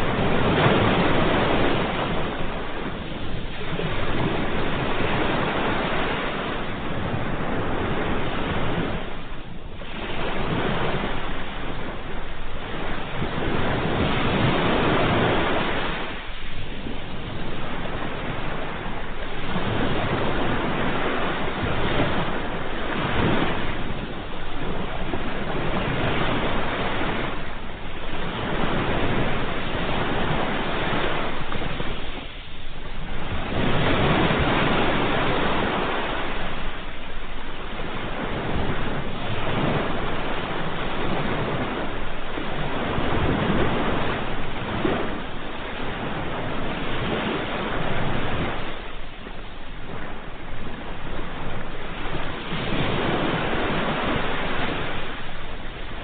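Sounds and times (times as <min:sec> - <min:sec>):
ocean waves breaking: 0:00.0 - 0:56.0.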